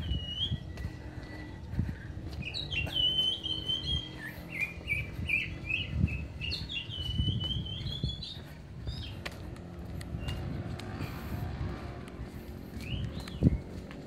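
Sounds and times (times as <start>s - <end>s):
small bird chirping: 2.4s - 9.2s.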